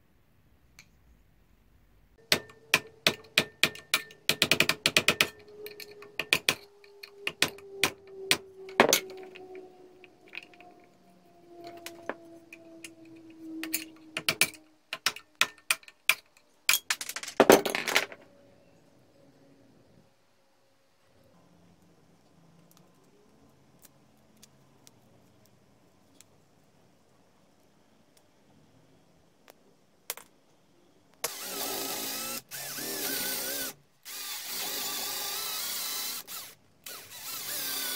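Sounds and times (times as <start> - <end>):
metal parts clinking: 5.0 - 7.4, 8.6 - 9.6.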